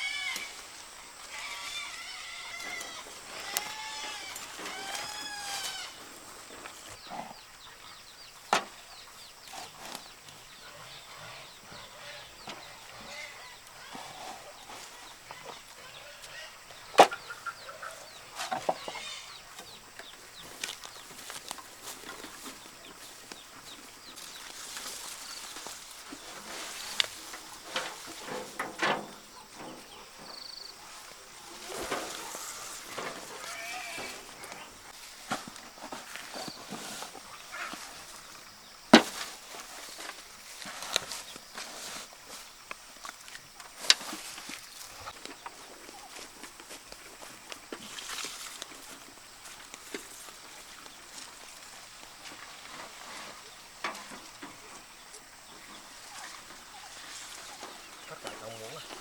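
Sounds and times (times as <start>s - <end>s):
chickens clucking: 0.0s - 40.2s, 52.6s - 59.0s.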